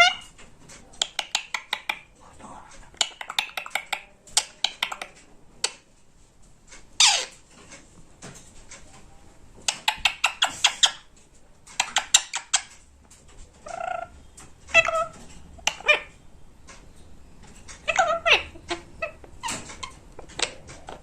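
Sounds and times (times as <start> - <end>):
parrot squawk: 0.0 - 0.3, 7.0 - 7.4, 13.6 - 14.1, 14.7 - 16.2, 17.8 - 20.6
parrot rapid clicking: 0.9 - 2.1, 3.0 - 5.8, 9.7 - 11.0, 11.7 - 12.8
parrot call: 7.0 - 7.4, 13.6 - 16.2, 17.8 - 20.6.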